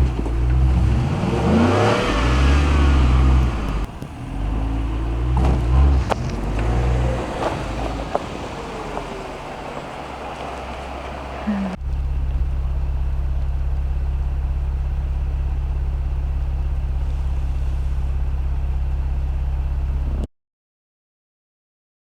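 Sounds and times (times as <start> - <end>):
low pulsing hum: 11.6 - 20.3.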